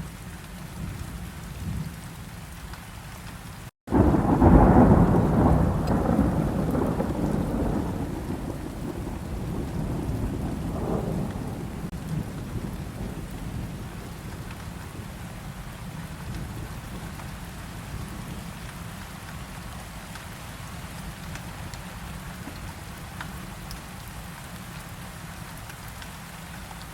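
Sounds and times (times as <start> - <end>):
steady rain: 0.0 - 26.9
thunder rumbling: 3.9 - 18.5.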